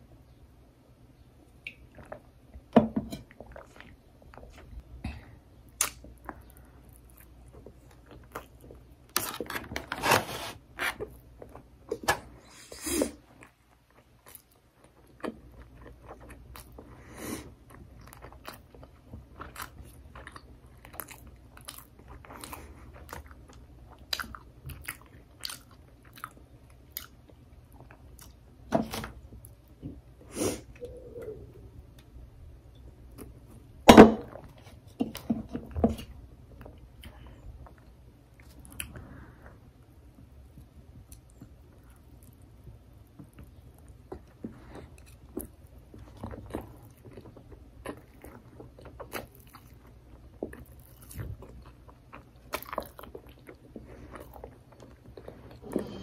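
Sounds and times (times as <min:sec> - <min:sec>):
chewing and biting food: 0:13.3 - 0:17.0, 0:17.6 - 0:28.4, 0:40.1 - 0:55.9.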